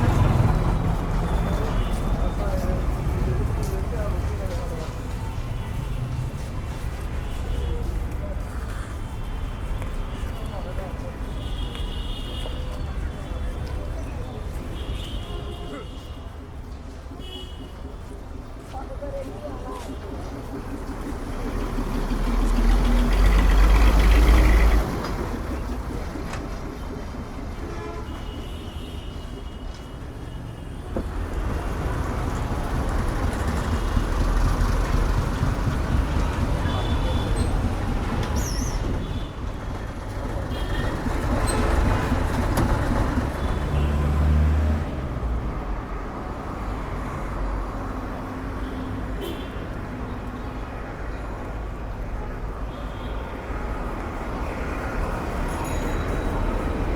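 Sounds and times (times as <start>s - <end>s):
vehicle engine rumble passing: 0.0s - 11.4s, 19.3s - 27.6s, 31.0s - 48.6s
street traffic noise: 0.0s - 56.9s.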